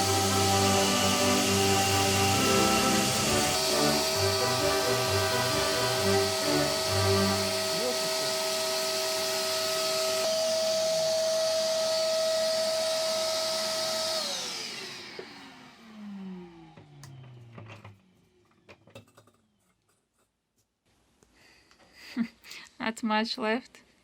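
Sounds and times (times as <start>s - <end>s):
wire-brush power tool whining: 0.0s - 17.2s.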